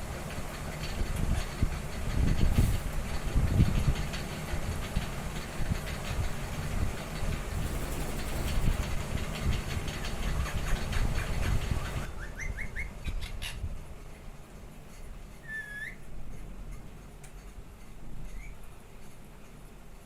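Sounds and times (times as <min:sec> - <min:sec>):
low rumble with rapid clicking: 0:00.0 - 0:15.3
parrot chirps: 0:12.1 - 0:13.6, 0:15.4 - 0:16.0
parrot squawk: 0:15.4 - 0:16.0.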